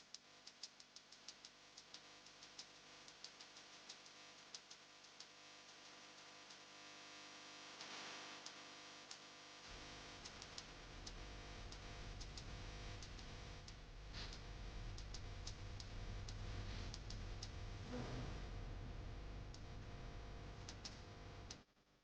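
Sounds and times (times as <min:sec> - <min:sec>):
faint clicks and ticks: 0:00.0 - 0:06.8, 0:07.7 - 0:17.8, 0:19.1 - 0:21.6
low steady hum: 0:09.7 - 0:21.6.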